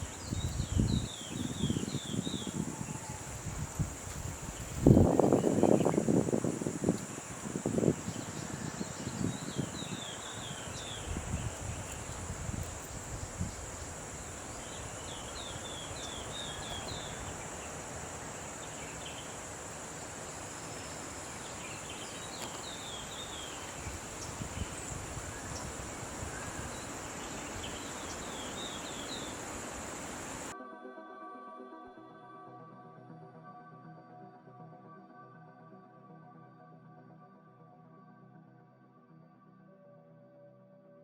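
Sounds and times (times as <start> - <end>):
high insect drone: 0.0 - 30.5
bird chirping: 7.8 - 30.5.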